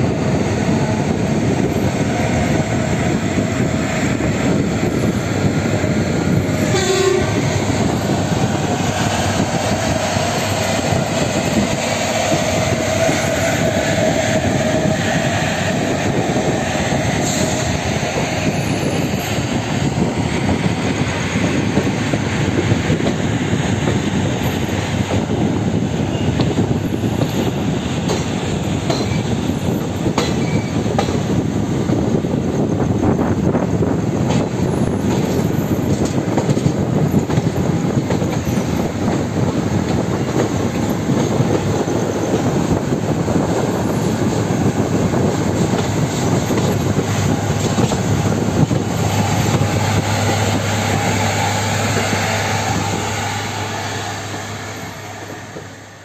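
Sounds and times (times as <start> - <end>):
train wheels rumbling on rails: 0.0 - 56.0
wheels squealing on rail: 0.1 - 56.0
train horn: 6.6 - 7.5.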